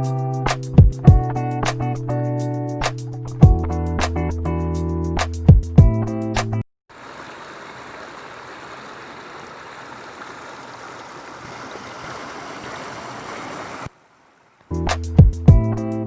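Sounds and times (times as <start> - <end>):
waterfall rushing: 6.9 - 14.0.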